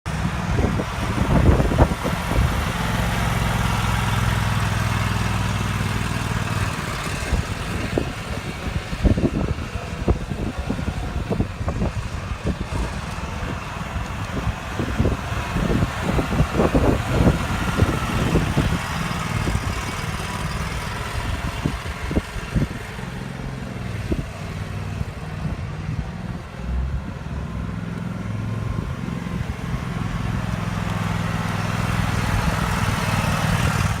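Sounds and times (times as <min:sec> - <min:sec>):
mower engine running: 0:00.1 - 0:34.0.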